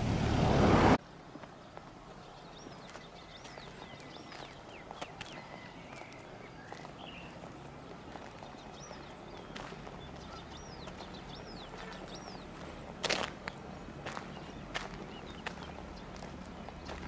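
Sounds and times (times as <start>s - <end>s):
outdoor background noise: 0.0s - 17.0s
footsteps on tarmac: 1.0s - 17.0s
small bird calling: 8.0s - 12.7s.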